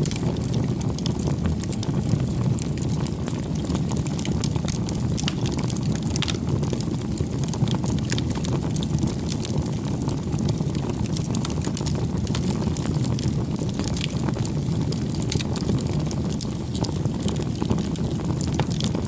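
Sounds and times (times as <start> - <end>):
fire crackling and popping: 0.0 - 19.0
wood fire burning: 0.0 - 19.0.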